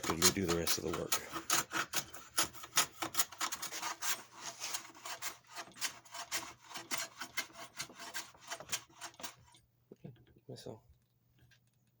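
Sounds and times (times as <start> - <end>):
hand plane scraping wood: 0.0 - 9.6.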